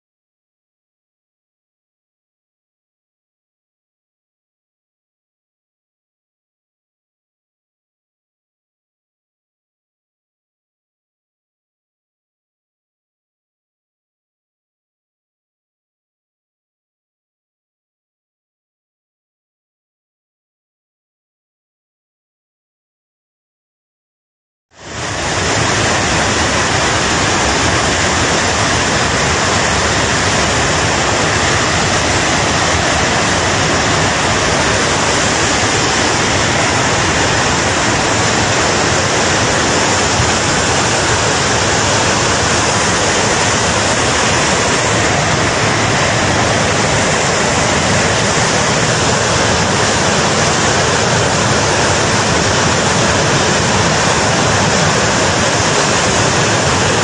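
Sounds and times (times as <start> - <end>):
river torrent rushing: 24.8 - 57.0.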